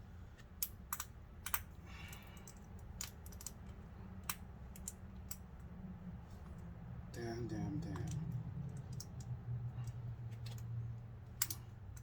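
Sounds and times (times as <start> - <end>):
low steady hum: 0.0 - 12.0
light metallic clicks and taps: 11.3 - 12.0.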